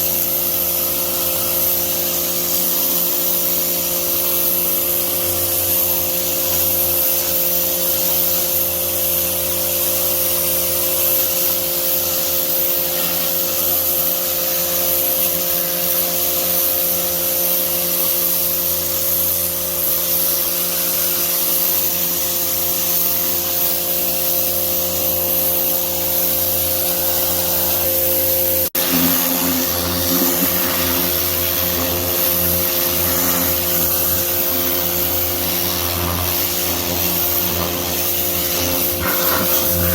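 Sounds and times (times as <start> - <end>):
pressure washer motor hum: 0.0 - 39.9
water spray hissing: 0.0 - 39.9.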